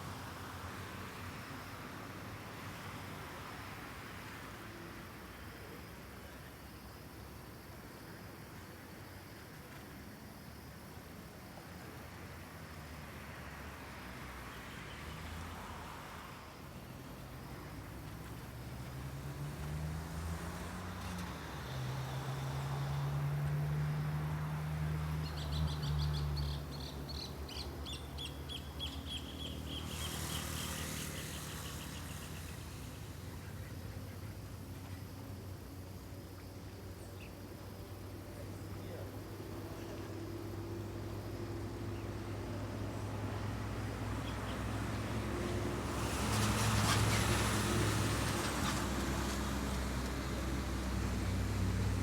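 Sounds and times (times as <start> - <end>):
vehicle passing: 18.0 - 26.6, 29.3 - 33.5, 40.0 - 52.0.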